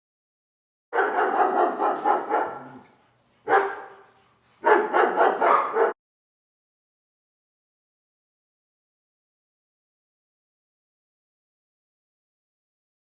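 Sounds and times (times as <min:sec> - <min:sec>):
dog barking: 0:01.0 - 0:06.0.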